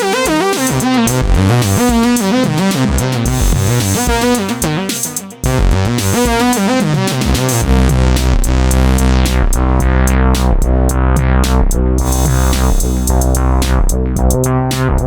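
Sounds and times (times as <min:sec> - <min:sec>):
synthesizer bass line: 0:00.0 - 0:15.0
sustained low synth bass note: 0:07.6 - 0:15.0.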